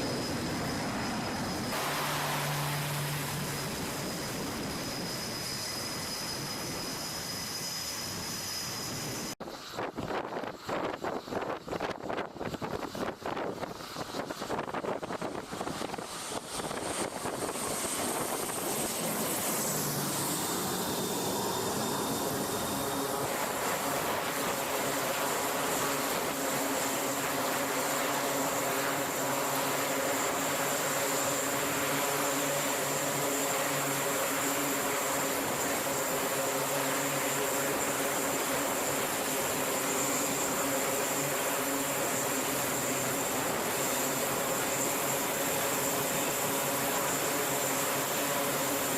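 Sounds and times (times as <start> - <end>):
aircraft turbine engine whine: 0.0 - 48.9.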